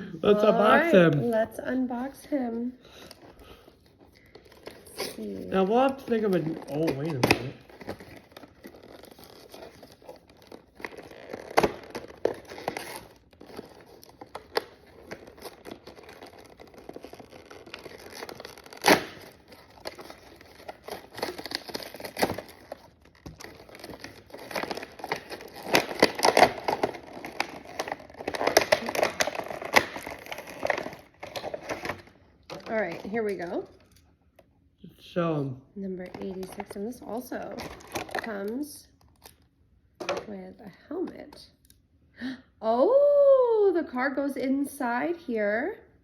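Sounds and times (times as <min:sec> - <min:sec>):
packaging crinkling and tearing: 0:02.9 - 0:34.0, 0:36.0 - 0:39.5.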